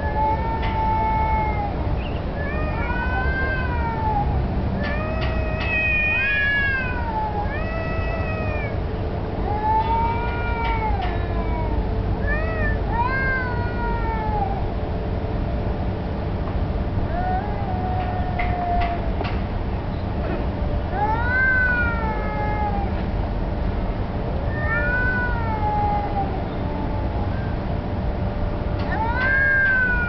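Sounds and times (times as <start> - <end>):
cats yowling: 0.0 - 14.8, 17.0 - 19.3, 20.9 - 23.1, 24.4 - 27.8, 28.8 - 30.0.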